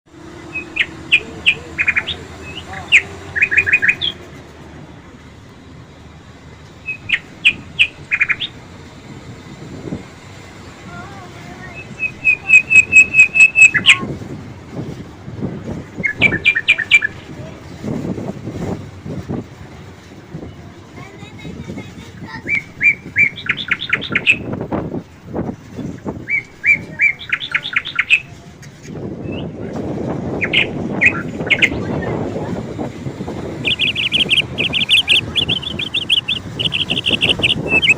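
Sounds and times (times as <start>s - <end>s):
outdoor background noise: 0.1s - 37.9s
songbird chirping: 0.3s - 4.4s, 6.6s - 8.6s, 11.6s - 14.1s, 16.0s - 17.3s, 22.4s - 24.5s, 26.3s - 28.4s, 33.6s - 37.9s.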